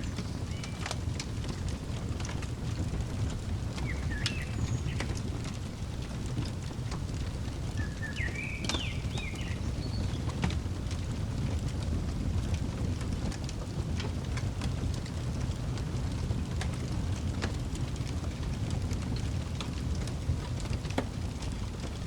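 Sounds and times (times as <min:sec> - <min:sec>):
wood fire crackling: 0:00.0 - 0:22.0
bird chirping: 0:03.8 - 0:05.6, 0:07.8 - 0:10.4.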